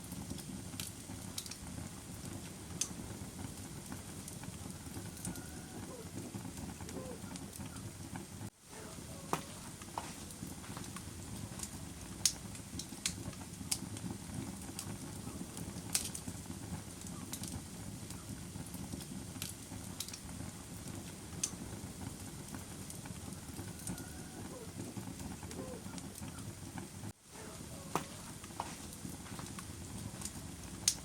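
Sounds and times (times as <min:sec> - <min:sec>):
low rumble of flames: 0:00.0 - 0:31.0
crackling wood pops: 0:00.2 - 0:05.4, 0:09.3 - 0:23.0, 0:27.5 - 0:31.0.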